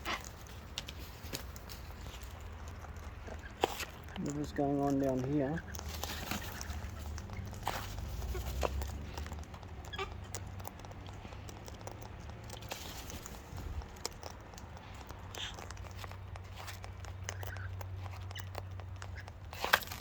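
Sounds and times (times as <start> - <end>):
beaks and feet clicking and tapping: 0.0 - 20.0
faint cockatoo calls: 8.2 - 8.7, 9.8 - 10.2.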